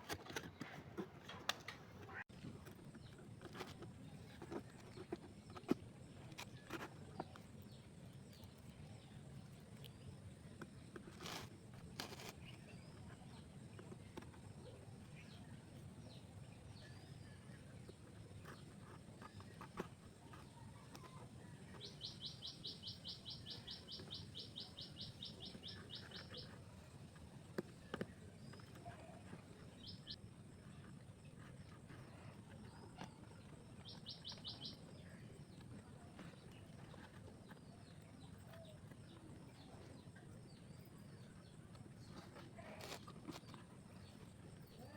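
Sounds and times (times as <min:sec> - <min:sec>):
bird chirps: 0:21.0 - 0:26.6, 0:33.8 - 0:35.2.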